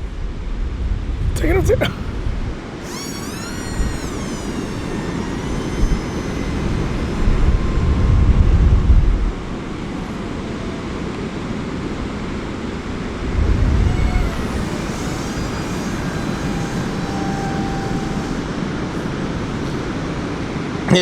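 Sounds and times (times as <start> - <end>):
model plane motor whine: 1.4 - 21.0.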